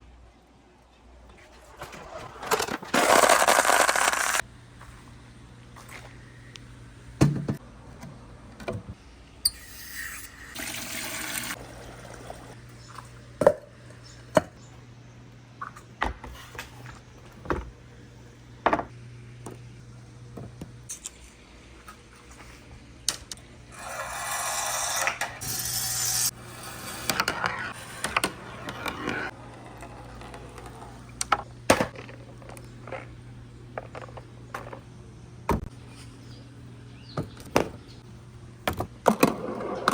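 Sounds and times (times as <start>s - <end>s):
marbles rushing down track: 3.0s - 4.4s.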